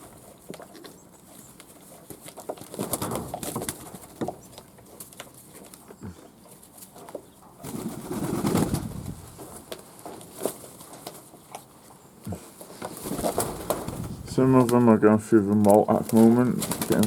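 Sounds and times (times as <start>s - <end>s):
wings flapping: 2.2s - 4.4s, 7.6s - 11.3s, 12.8s - 15.0s, 15.6s - 17.0s
doves cooing: 11.0s - 17.0s.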